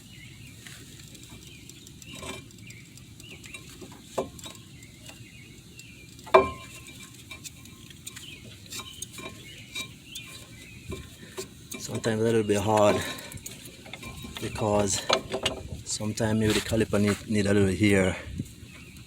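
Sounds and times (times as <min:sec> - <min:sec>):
metallic clank ringing: 0:06.3 - 0:07.0
metal clinks and scraping: 0:06.3 - 0:15.7.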